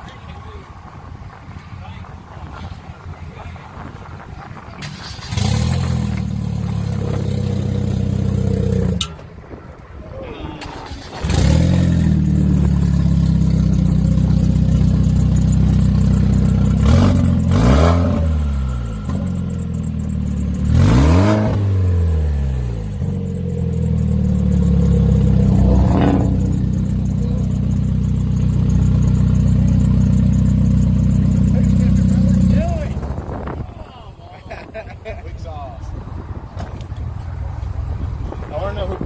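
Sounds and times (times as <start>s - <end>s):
engine revving: 4.8s - 9.0s, 10.7s - 33.3s
turbocharged car engine idling: 10.7s - 33.7s.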